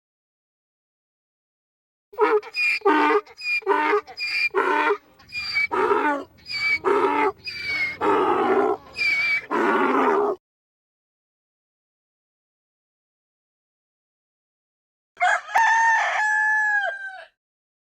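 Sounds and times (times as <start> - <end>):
wild animal calling: 2.2 - 10.4.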